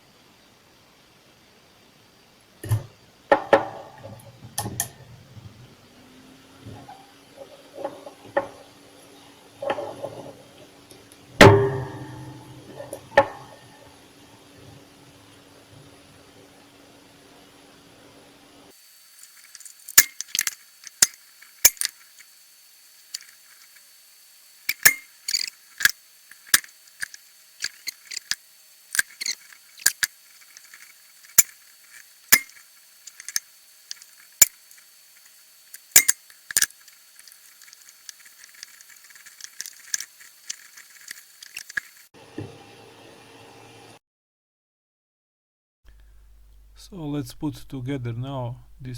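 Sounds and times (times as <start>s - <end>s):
low steady hum: 0.0s - 18.7s, 45.9s - 48.9s
small tools clicking and tapping: 19.2s - 22.3s, 24.7s - 42.1s.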